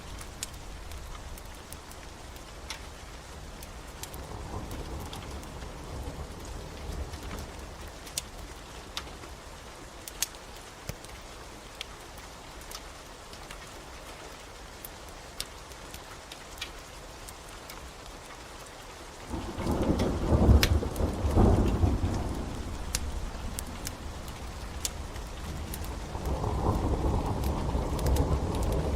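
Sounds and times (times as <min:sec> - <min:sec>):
wood fire crackling and popping: 0:00.0 - 0:05.7, 0:06.3 - 0:09.3, 0:10.0 - 0:28.9
steady rain: 0:00.0 - 0:28.9
thunder rumbling: 0:19.3 - 0:28.9.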